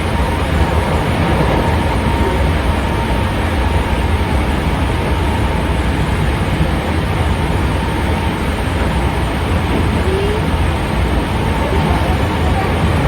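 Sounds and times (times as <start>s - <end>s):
train wheels rumbling on rails: 0.0s - 13.0s
faint high tone: 9.8s - 10.8s, 11.4s - 13.0s.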